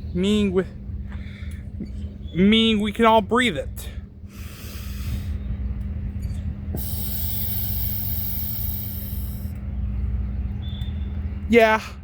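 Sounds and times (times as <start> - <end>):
steady low rumble: 0.0 - 12.0
person breathing in deeply: 4.3 - 5.4.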